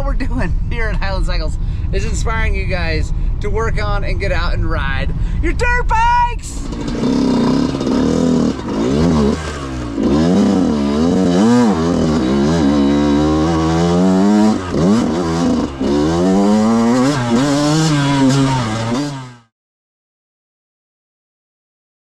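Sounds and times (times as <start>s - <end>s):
dirt bike engine revving: 6.6s - 19.5s.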